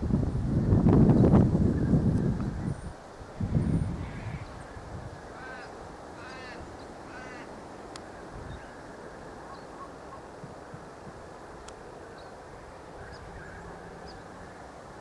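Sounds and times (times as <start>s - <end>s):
outdoor background hiss: 0.0s - 15.0s
bird calling: 3.7s - 10.4s.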